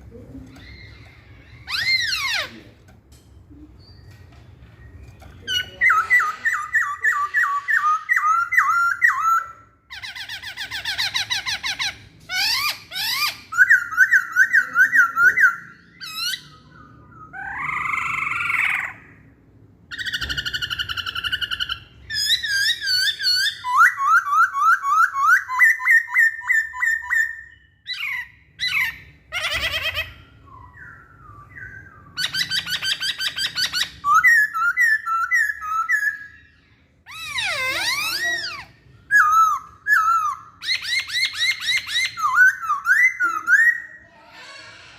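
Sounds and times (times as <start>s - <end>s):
laughingthrush singing whistled notes: 37.1s - 44.0s.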